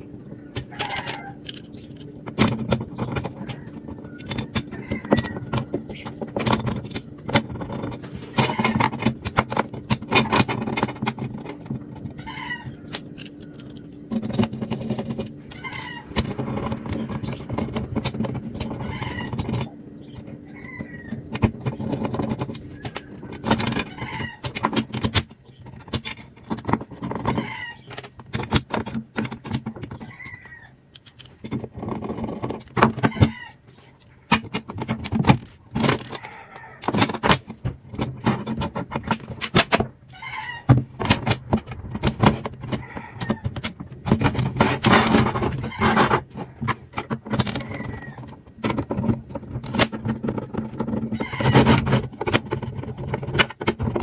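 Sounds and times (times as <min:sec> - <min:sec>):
short squeaks: 0:00.3 - 0:02.0.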